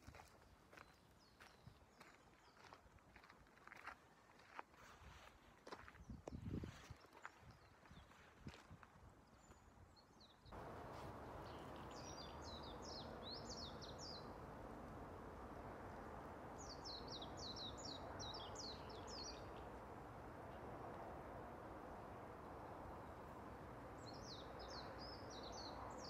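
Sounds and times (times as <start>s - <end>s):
songbird chirping: 0.5s - 4.0s, 9.3s - 14.5s, 16.6s - 19.8s, 24.0s - 26.0s.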